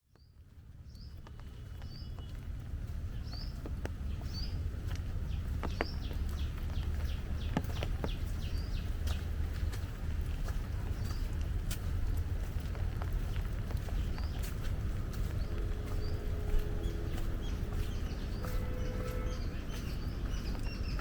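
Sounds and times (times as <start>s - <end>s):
low rumble: 0.4s - 21.0s
bird calling: 14.2s - 21.0s.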